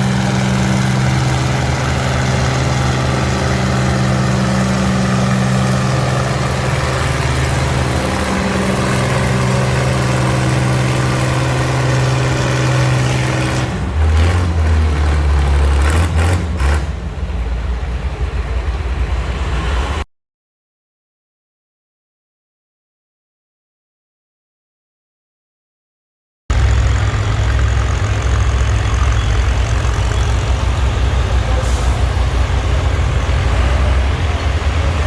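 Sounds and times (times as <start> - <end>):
tractor engine idling: 0.0 - 15.9, 26.5 - 35.0.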